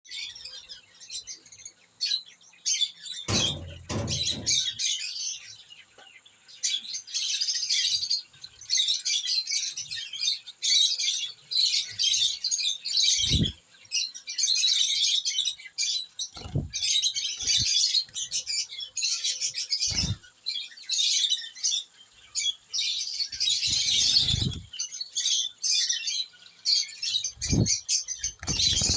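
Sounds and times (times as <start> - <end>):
small birds chirping: 0.1 - 28.9.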